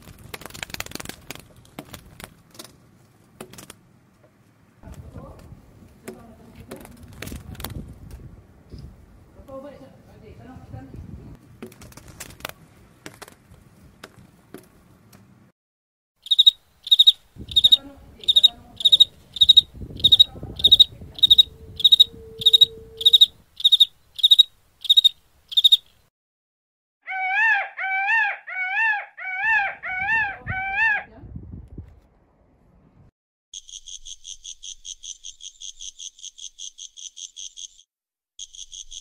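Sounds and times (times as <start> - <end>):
insect chirping: 16.2 - 26.0, 33.6 - 39.0
animal wavering calls: 18.3 - 23.4, 27.0 - 31.1.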